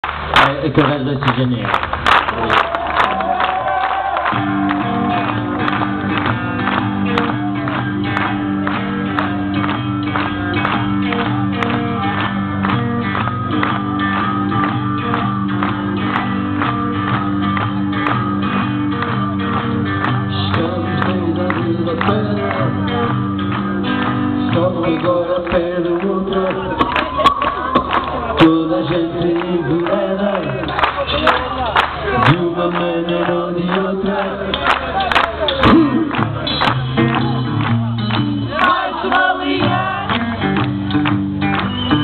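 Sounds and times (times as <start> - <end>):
live rock band playing: 4.2 - 42.0
sustained guitar chords: 4.3 - 26.9.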